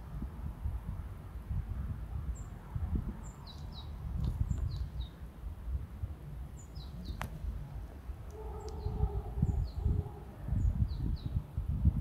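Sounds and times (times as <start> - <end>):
wind rumble on microphone: 0.0 - 12.0
small birds chirping: 3.2 - 5.3, 6.5 - 7.5, 8.2 - 11.4.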